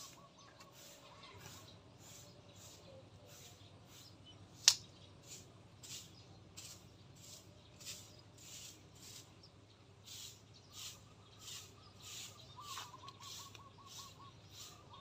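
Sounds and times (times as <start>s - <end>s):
soft repeating hiss: 2.0s - 14.9s
small bird trilling: 10.7s - 15.0s.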